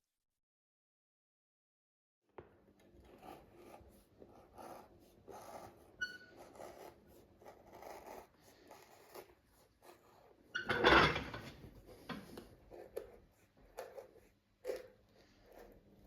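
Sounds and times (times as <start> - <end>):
knife scraping leather: 3.0 - 10.6, 11.8 - 16.0.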